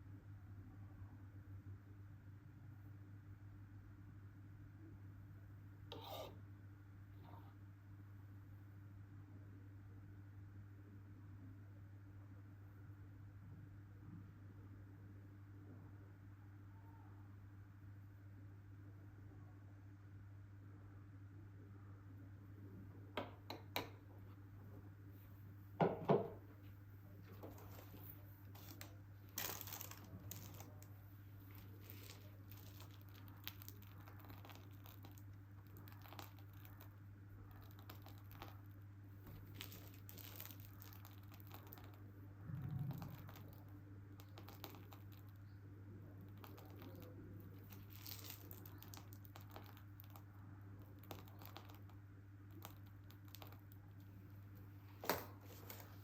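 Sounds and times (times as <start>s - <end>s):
low electrical hum: 0.0s - 56.0s
plastic crinkling and rustling: 27.2s - 30.9s, 31.5s - 36.9s, 39.3s - 42.0s, 42.7s - 45.4s, 46.3s - 51.9s, 55.0s - 56.0s.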